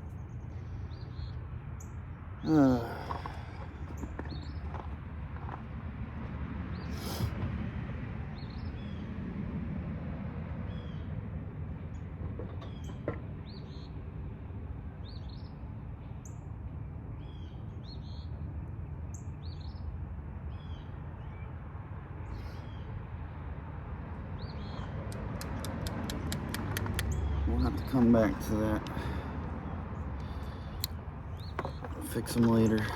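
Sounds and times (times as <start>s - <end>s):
small birds chirping: 24.4s - 32.9s.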